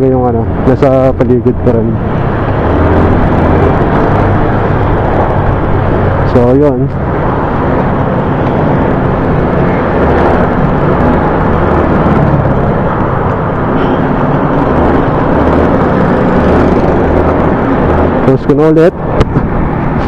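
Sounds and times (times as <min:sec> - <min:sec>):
motorcycle engine drone: 0:00.0 - 0:20.0
wind buffeting microphone: 0:00.0 - 0:20.0.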